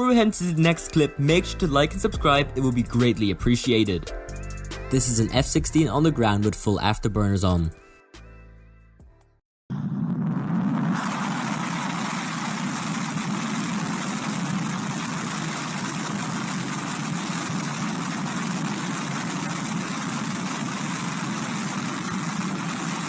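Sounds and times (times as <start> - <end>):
jet engine roaring: 9.7 - 23.0.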